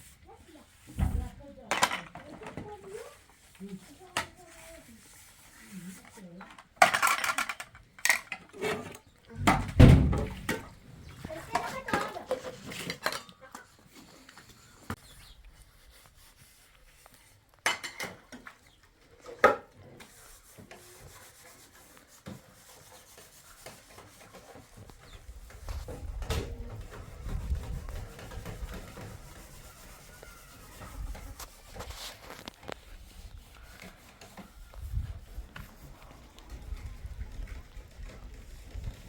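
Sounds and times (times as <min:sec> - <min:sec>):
rubbing and scraping handling noise: 0:00.0 - 0:39.0
objects knocking: 0:06.5 - 0:13.3.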